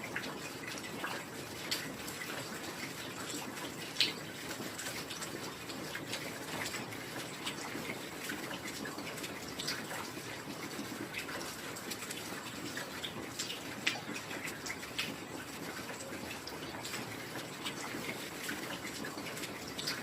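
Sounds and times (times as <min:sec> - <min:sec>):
drops splashing and dripping: 0:00.0 - 0:20.0.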